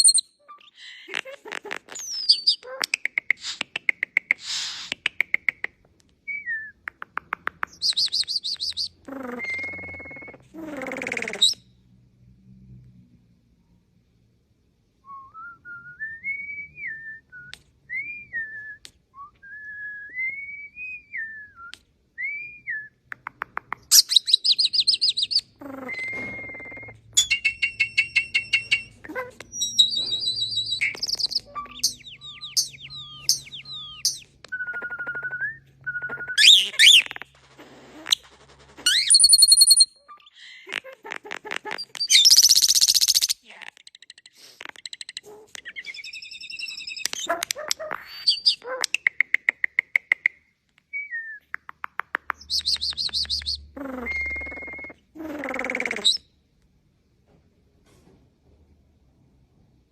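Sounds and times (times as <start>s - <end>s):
songbird singing: 22.5s - 37.2s, 51.0s - 56.2s.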